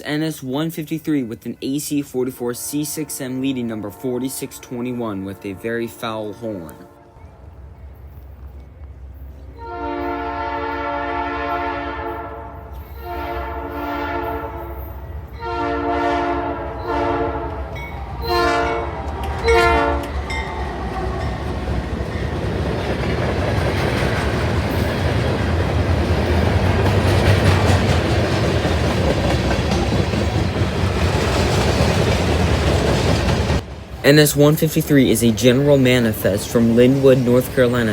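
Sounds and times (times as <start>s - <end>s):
train rumbling past: 1.4s - 37.9s
locomotive horn blasts: 2.2s - 7.3s, 9.6s - 20.6s
wheels clacking on rails: 16.5s - 37.9s.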